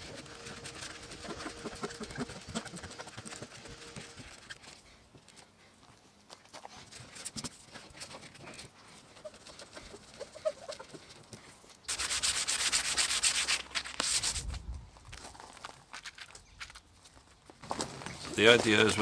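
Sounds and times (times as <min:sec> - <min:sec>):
sanding scraping on hull: 0:00.0 - 0:04.6, 0:11.9 - 0:14.5
fast rhythmic rubbing: 0:00.0 - 0:04.8, 0:07.0 - 0:11.3, 0:11.9 - 0:14.4.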